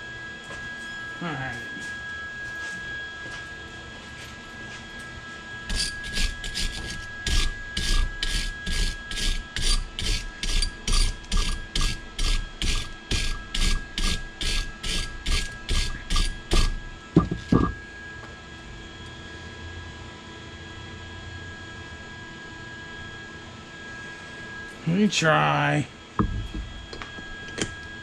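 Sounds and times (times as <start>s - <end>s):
hand tool scraping metal: 5.7s - 16.8s.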